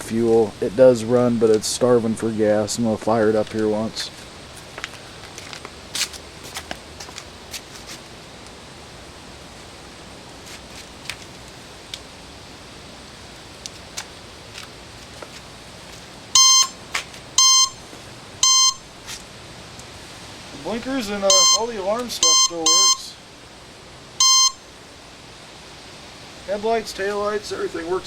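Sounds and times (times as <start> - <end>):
alarm electronic beeps: 16.4 - 16.8, 17.4 - 17.8, 18.4 - 18.8, 21.3 - 23.1, 24.2 - 24.6.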